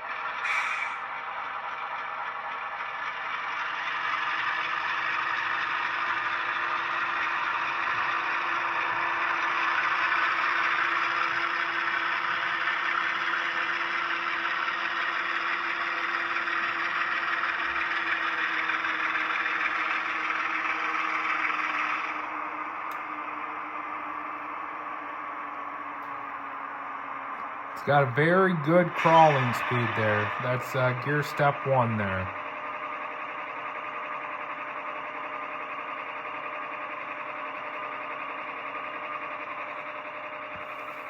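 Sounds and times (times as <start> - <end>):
model diesel engine sound: 0.0 - 41.0
steady hum: 22.1 - 36.2.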